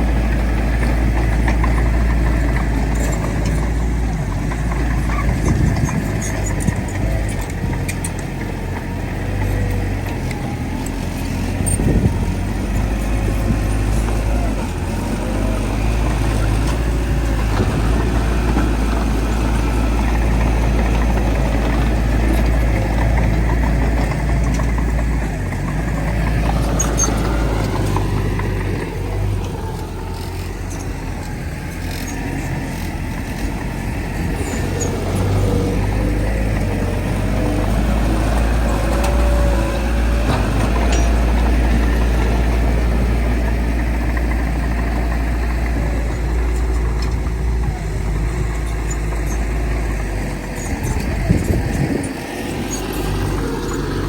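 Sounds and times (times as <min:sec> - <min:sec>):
heavy diesel machinery droning: 0:00.0 - 0:54.0.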